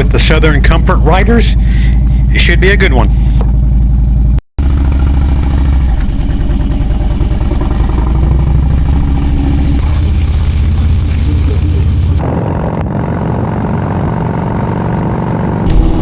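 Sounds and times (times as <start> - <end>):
motorcycle engine running: 3.1 - 12.2.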